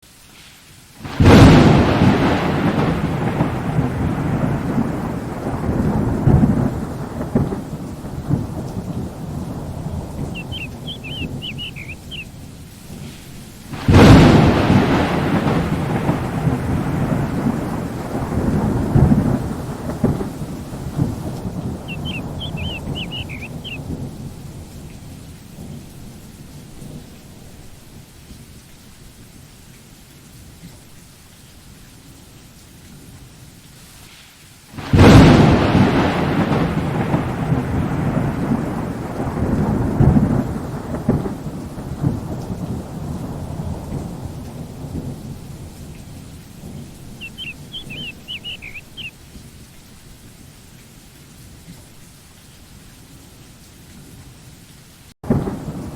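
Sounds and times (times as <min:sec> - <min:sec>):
steady rain: 0:00.0 - 0:55.9
loud thunderclap: 0:01.0 - 0:13.1, 0:13.7 - 0:25.8, 0:34.8 - 0:49.1, 0:55.2 - 0:55.9
rumble of thunder: 0:01.1 - 0:28.1, 0:34.8 - 0:49.6, 0:55.2 - 0:55.9.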